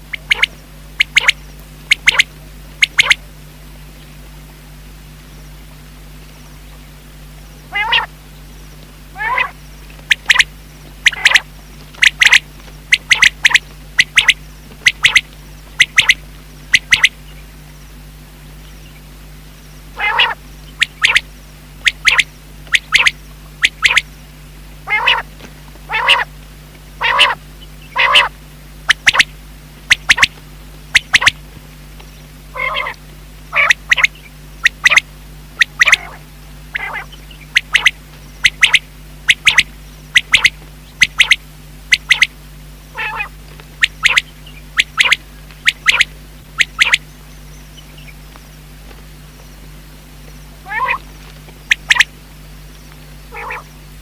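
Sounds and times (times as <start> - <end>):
quail calling: 0.0 - 3.2, 7.7 - 8.2, 9.1 - 17.5, 19.9 - 24.2, 24.8 - 25.3, 25.9 - 26.4, 27.0 - 31.4, 32.5 - 49.6, 50.3 - 54.0.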